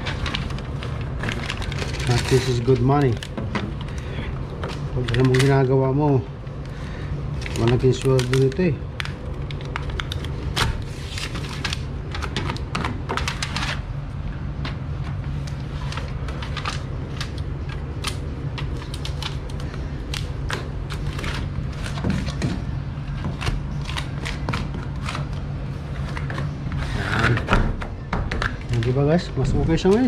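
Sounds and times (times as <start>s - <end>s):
rapid clicks and crackles: 0.0s - 5.9s, 6.6s - 13.9s
steady low hum: 0.0s - 30.0s.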